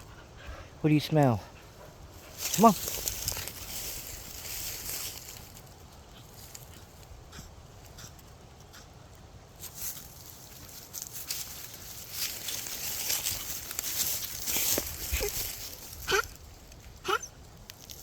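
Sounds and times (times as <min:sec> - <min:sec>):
dogs rustling through ground cover: 0:01.2 - 0:07.1, 0:09.6 - 0:18.0
footsteps crunching through ground cover: 0:01.2 - 0:08.1, 0:09.5 - 0:18.0.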